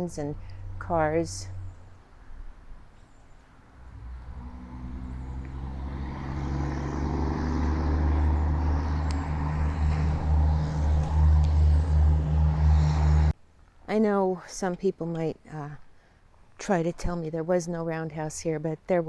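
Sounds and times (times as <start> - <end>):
vehicle engine drone: 0.1 - 2.5, 3.5 - 13.4.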